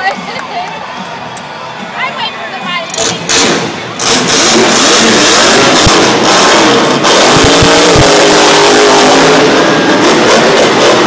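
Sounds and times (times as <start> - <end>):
monster truck engine revving: 2.9 - 11.0.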